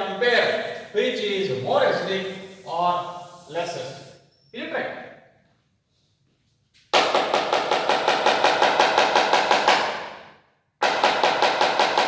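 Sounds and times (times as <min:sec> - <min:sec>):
rapid tapping on a board: 0:07.0 - 0:10.2, 0:10.8 - 0:12.0.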